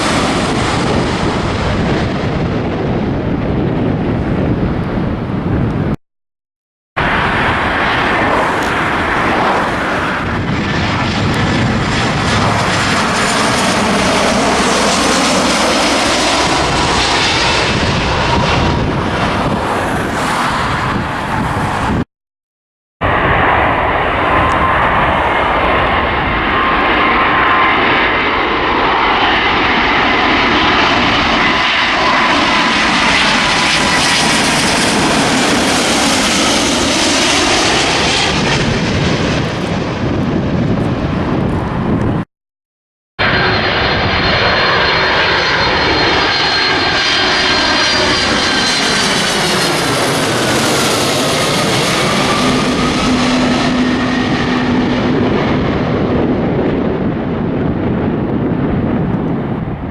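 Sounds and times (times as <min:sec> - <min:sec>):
jet airliner engines passing: 0:00.0 - 0:06.0, 0:07.0 - 0:22.0, 0:23.0 - 0:42.3, 0:43.2 - 0:59.9.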